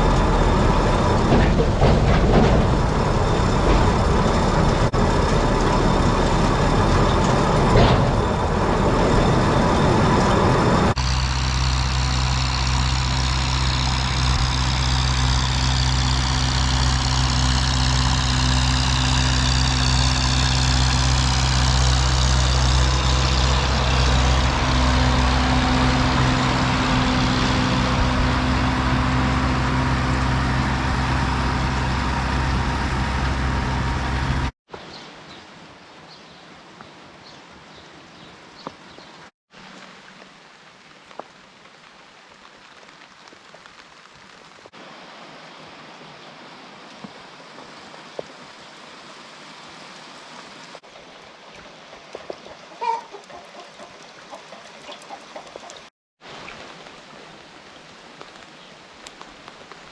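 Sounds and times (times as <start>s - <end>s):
tractor engine running: 0.0s - 34.6s.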